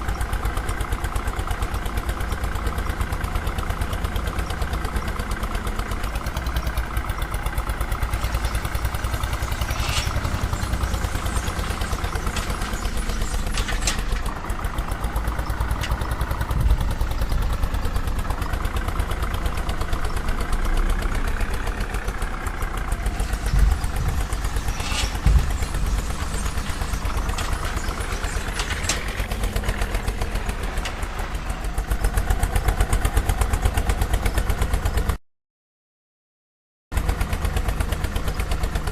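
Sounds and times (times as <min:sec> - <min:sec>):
vehicle engine idling: 0:00.0 - 0:35.2, 0:37.0 - 0:38.9
knocks and clanks: 0:08.2 - 0:14.5, 0:23.1 - 0:31.7.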